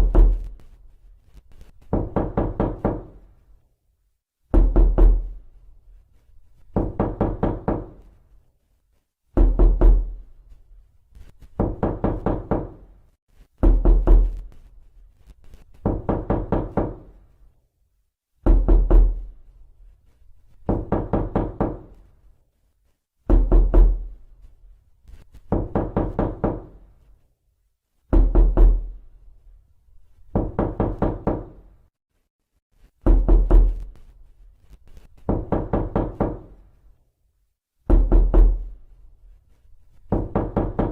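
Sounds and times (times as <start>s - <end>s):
knocking on a door: 0.0s - 0.5s, 1.9s - 3.2s, 4.5s - 5.4s, 6.7s - 8.1s, 9.4s - 10.2s, 11.6s - 12.9s, 13.6s - 14.4s, 15.8s - 17.2s, 18.4s - 19.3s, 20.6s - 21.9s, 23.3s - 24.1s, 25.5s - 26.8s, 28.1s - 29.0s, 30.3s - 31.7s, 33.0s - 33.9s, 35.2s - 36.6s, 37.9s - 38.7s, 40.1s - 40.9s.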